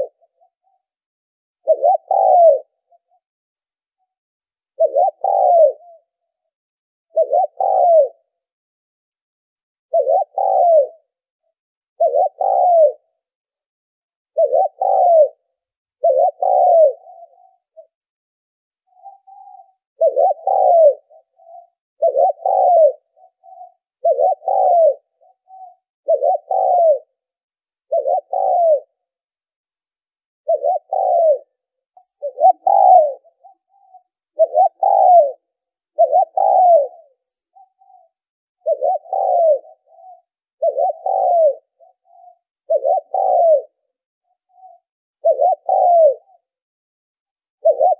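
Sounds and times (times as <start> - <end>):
dove cooing: 0.0 - 0.9, 1.6 - 3.1, 4.8 - 6.2, 7.1 - 8.4, 9.9 - 11.2, 12.0 - 13.2, 14.3 - 18.0, 18.9 - 27.2, 27.8 - 29.1, 30.4 - 46.6, 47.6 - 47.9.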